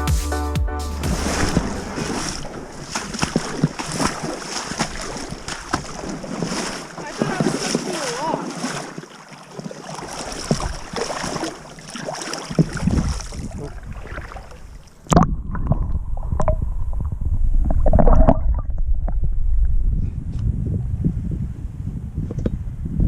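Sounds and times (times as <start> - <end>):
low wind rumble: 1.0 - 6.8, 12.6 - 23.0
flowing river water: 1.0 - 15.1
wind buffeting microphone: 1.1 - 8.0, 10.2 - 11.6, 12.5 - 23.0.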